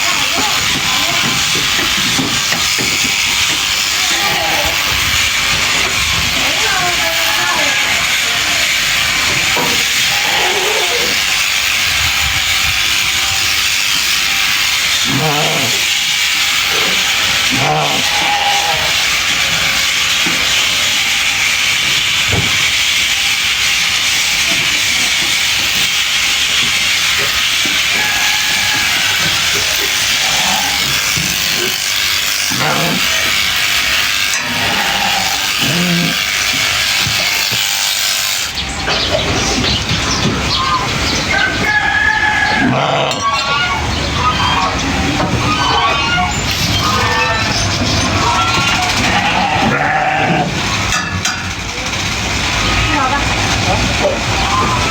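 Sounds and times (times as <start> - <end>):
electric clippers buzzing: 0.0 - 45.4, 46.2 - 54.9
electric sheep shears hissing: 0.0 - 54.9
sheep bleating: 0.1 - 12.6, 14.0 - 21.6, 27.2 - 37.8, 41.7 - 44.8, 45.6 - 50.7.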